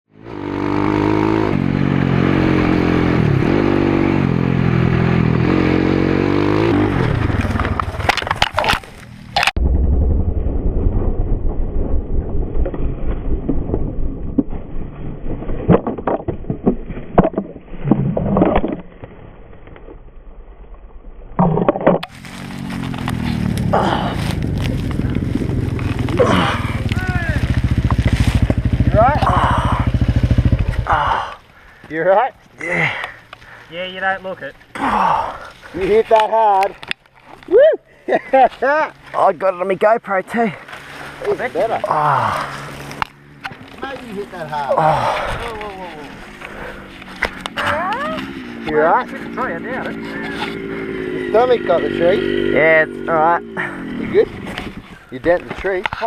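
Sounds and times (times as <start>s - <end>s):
muffled wind rumble: 9.0s - 21.4s, 22.0s - 31.7s, 53.0s - 56.0s
motorbike crashing into tree: 22.0s - 30.9s
motorbike engine running: 22.1s - 31.4s, 41.6s - 55.1s.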